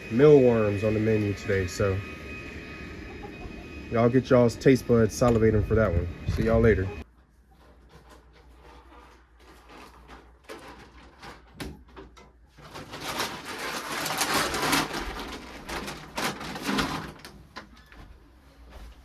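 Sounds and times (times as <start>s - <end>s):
chickens cooing: 0.2s - 7.0s.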